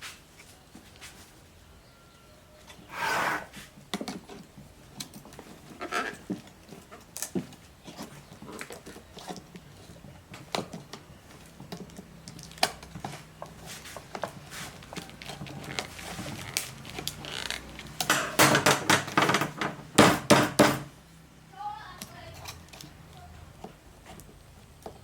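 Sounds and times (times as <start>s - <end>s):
small metal clinks and knocks: 4.0s - 13.6s, 22.0s - 25.0s.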